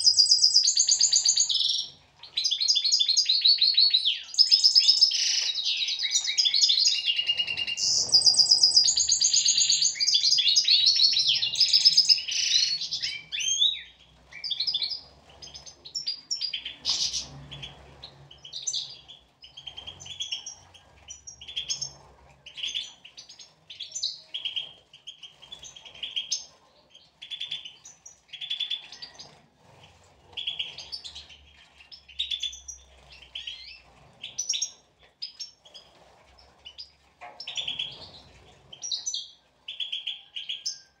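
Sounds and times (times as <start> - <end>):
goldfinches singing: 0.0 - 1.9, 2.6 - 15.0.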